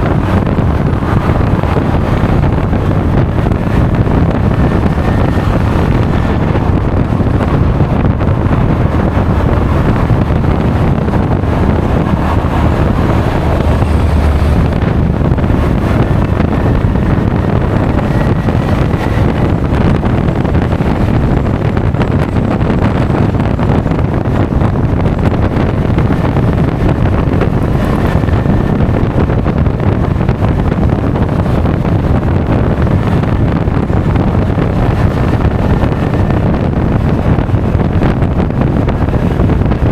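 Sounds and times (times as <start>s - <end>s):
scooter engine running: 0.0s - 39.8s
road noise: 0.0s - 39.9s
wind buffeting microphone: 0.0s - 39.9s.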